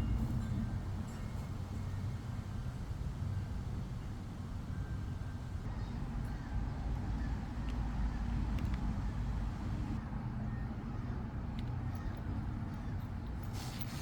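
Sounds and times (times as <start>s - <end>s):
engine running steadily: 0.0s - 14.0s
faint clicks: 8.4s - 9.0s.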